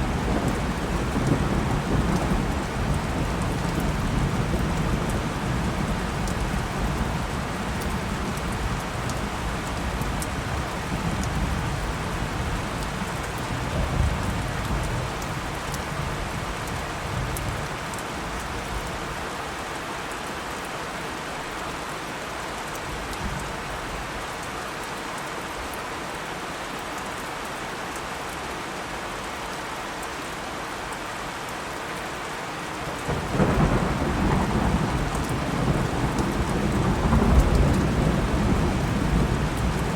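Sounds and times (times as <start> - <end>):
thunder rumbling: 0.0 - 15.0, 33.1 - 39.9
heavy rain: 0.0 - 39.9.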